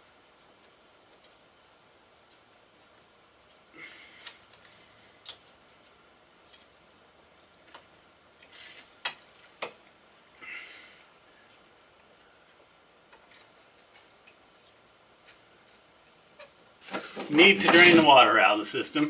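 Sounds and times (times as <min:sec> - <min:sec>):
scraping and rustling of parts: 0:16.4 - 0:18.4.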